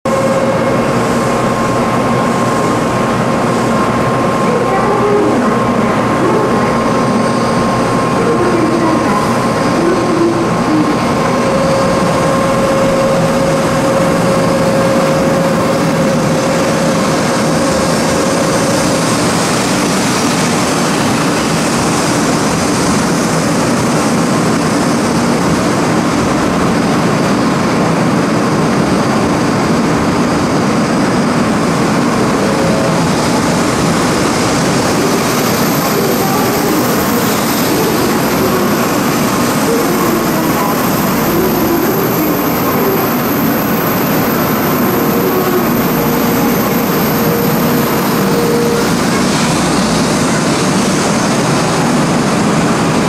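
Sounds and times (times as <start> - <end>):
steady whine: 0.0 - 53.0
train passing rumble: 0.0 - 53.0.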